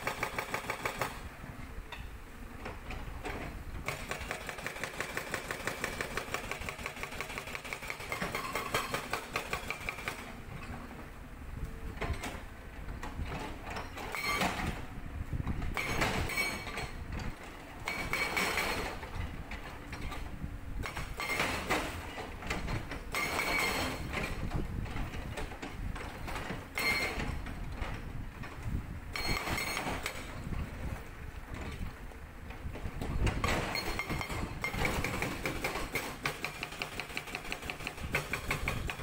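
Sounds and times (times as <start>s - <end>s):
excavator engine rumble: 0.0s - 39.0s
hydraulic breaker on rock: 22.6s - 24.5s, 29.2s - 30.4s, 33.2s - 39.0s.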